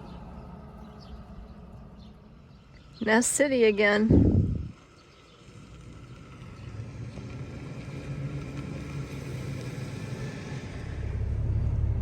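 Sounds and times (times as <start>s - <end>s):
truck engine running: 3.8s - 12.0s.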